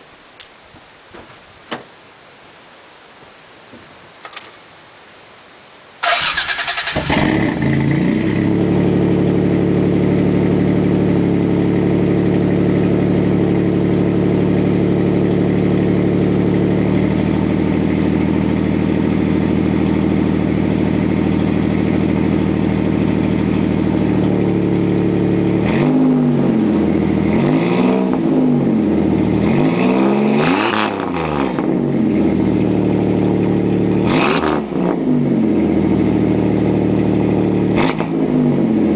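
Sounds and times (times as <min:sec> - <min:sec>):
pickup engine cold start and idle: 0:06.0 - 0:27.4
engine revving exhaust note: 0:06.1 - 0:38.9.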